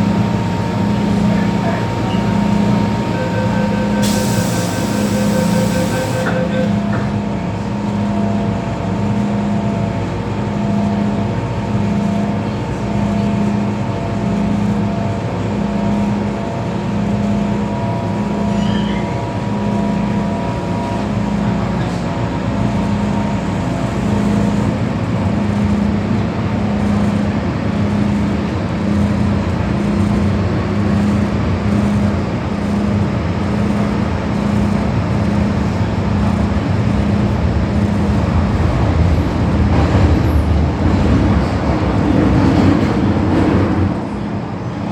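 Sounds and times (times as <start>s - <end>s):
faint motor whine: 0.0s - 6.9s
pulsing low hum: 0.0s - 7.0s
train rumbling in tunnel: 0.0s - 44.9s.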